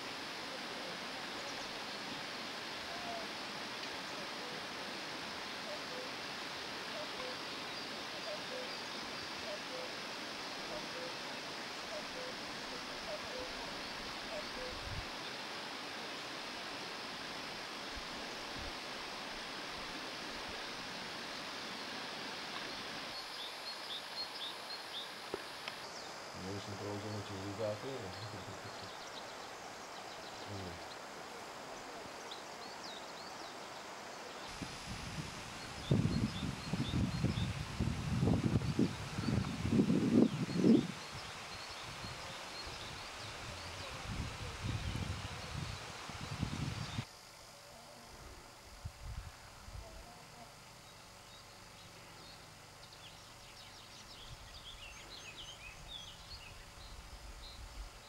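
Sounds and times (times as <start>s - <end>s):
wind rumble on microphone: 14.7s - 15.1s, 34.6s - 47.0s, 48.7s - 50.1s
distant songbird chirping: 20.5s - 34.6s, 49.8s - 58.0s
small birds chirping: 50.7s - 58.0s.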